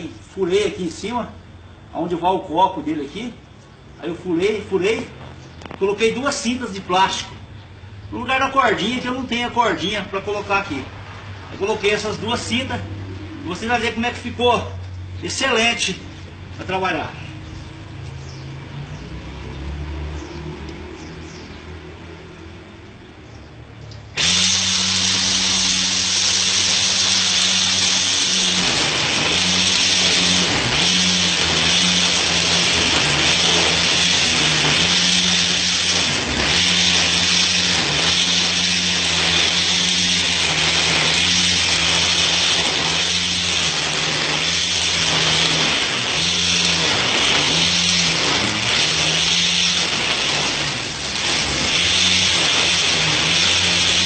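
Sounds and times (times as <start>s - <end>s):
electric string trimmer running: 24.0s - 54.0s.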